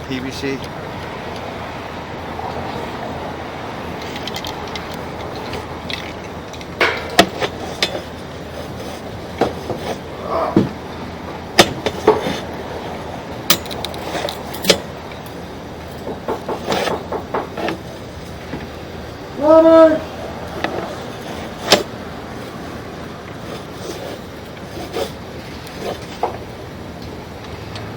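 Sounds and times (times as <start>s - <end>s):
steady outdoor hum: 0.0s - 27.9s
sharp clicks and knocks: 4.0s - 8.2s, 13.5s - 18.7s.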